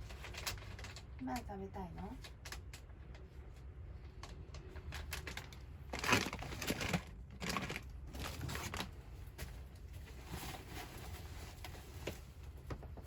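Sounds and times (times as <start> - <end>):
crinkling and crunching: 0.0 - 13.0.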